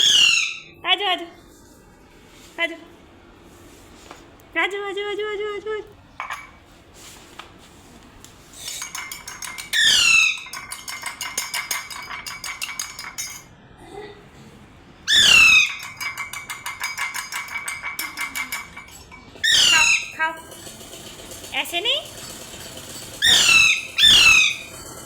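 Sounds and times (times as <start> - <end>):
parrot screeching: 0.0 - 0.8, 9.6 - 10.6, 15.1 - 16.2, 19.4 - 20.2, 23.2 - 24.8
parrot ticking chatter: 8.6 - 13.0, 15.1 - 18.8, 19.4 - 25.0.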